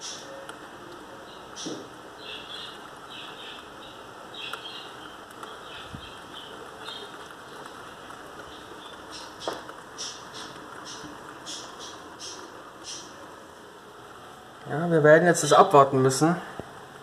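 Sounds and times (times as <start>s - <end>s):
steady rain: 0.0s - 17.0s
small bird chirping: 1.2s - 7.8s, 8.4s - 13.4s.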